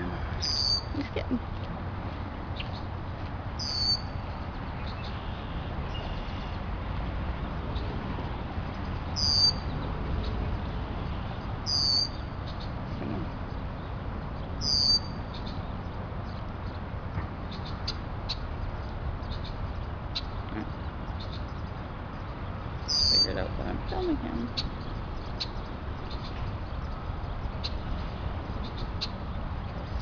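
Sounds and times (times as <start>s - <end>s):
blackbird high calls: 0.4s - 1.0s, 3.6s - 4.2s, 9.2s - 10.4s, 11.6s - 13.2s, 14.6s - 15.6s, 22.8s - 27.8s.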